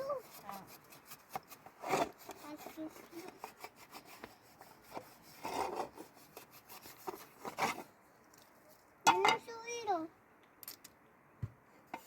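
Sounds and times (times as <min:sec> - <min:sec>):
rough rubbing and scraping: 0:00.0 - 0:08.0.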